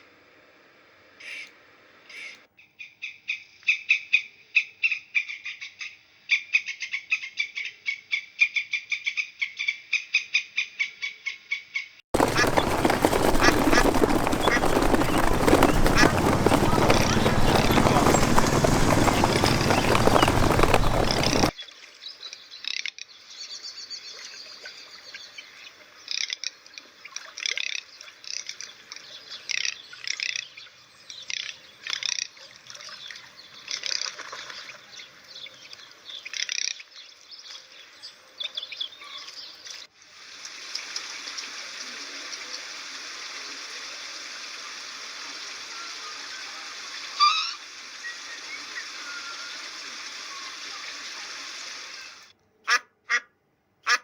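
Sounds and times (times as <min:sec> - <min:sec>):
birds chirping: 0:12.2 - 0:21.5
running water rushing: 0:12.2 - 0:21.5
small splashes: 0:12.2 - 0:21.5.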